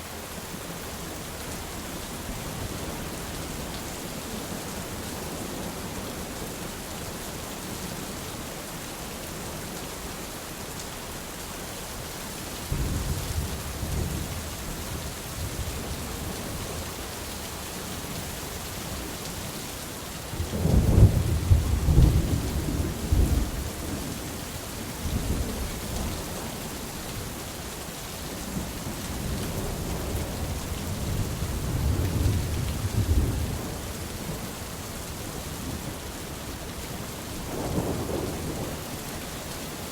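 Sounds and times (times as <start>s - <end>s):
steady rain: 0.0s - 39.9s
thunder rumbling: 37.5s - 38.9s.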